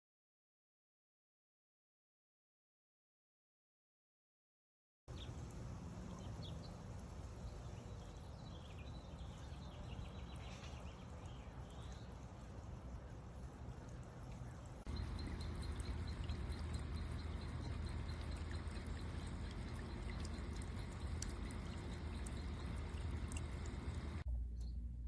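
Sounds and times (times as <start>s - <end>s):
fountain water splashing: 14.9s - 24.2s.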